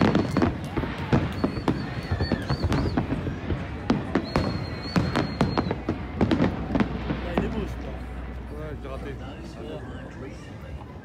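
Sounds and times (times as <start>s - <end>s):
high whistle: 0.0s - 3.2s, 4.0s - 5.9s
crowd voices: 0.0s - 11.0s.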